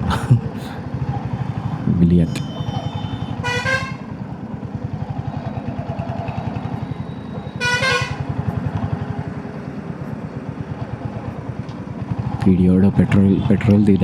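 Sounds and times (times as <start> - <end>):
motorcycle horn honk: 2.3 - 5.4, 6.7 - 8.5.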